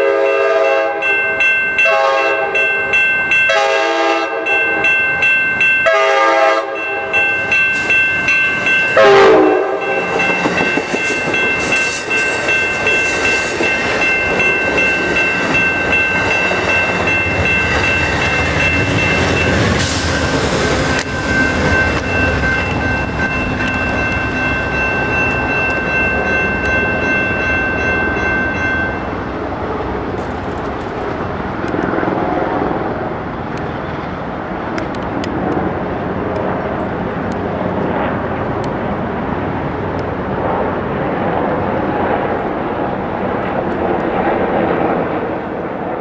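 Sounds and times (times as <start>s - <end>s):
train horn chord: 0.0s - 1.1s, 1.8s - 2.7s, 3.5s - 4.6s, 5.8s - 7.2s, 8.9s - 10.3s
locomotive engine and wheel noise: 4.3s - 46.0s.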